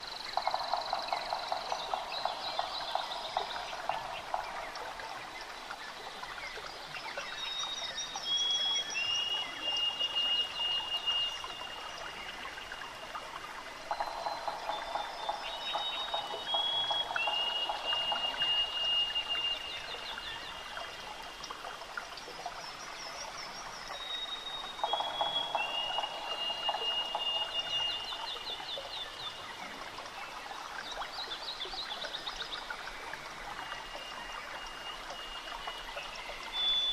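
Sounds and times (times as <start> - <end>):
trickling water: 0.0 - 36.9
birds singing whistled notes: 7.2 - 12.9, 13.9 - 20.9, 22.8 - 29.4, 33.7 - 36.9.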